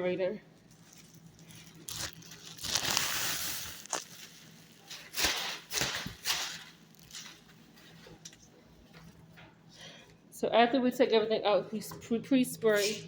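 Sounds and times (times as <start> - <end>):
plastic trash bag rustling: 0.6 - 8.3.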